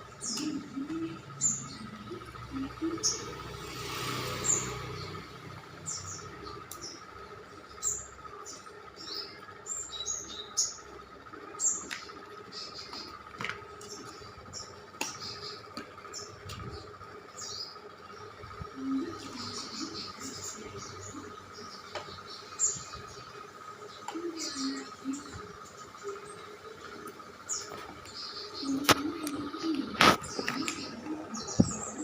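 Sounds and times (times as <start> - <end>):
faint high hum: 0.0 - 3.6, 5.8 - 32.0
small birds chirping: 0.0 - 32.0.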